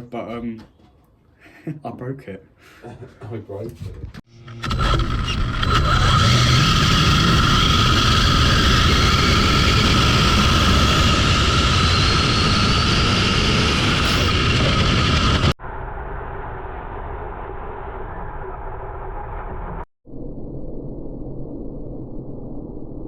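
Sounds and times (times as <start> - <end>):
electric motor whine: 4.3 - 15.6
wind and tyre roar: 4.8 - 15.5.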